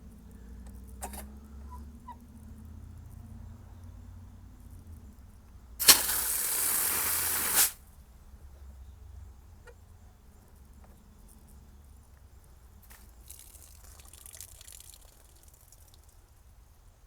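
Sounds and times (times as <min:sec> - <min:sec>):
water rushing from spigot: 0:05.8 - 0:07.8.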